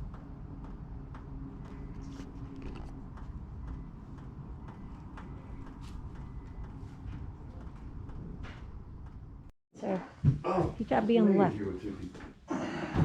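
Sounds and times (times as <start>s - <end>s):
steady low rumble: 0.0s - 9.5s.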